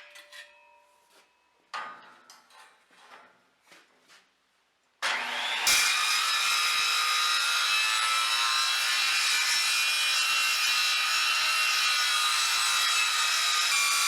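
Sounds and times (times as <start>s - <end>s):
power tool cutting steel: 5.0s - 14.0s.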